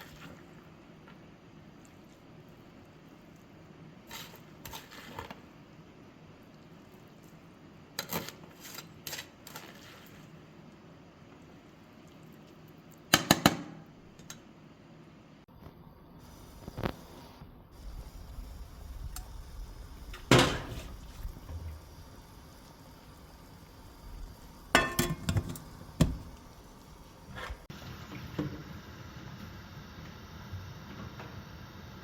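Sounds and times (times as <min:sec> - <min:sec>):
pots and utensils clattering: 0:20.1 - 0:21.6, 0:24.7 - 0:26.5.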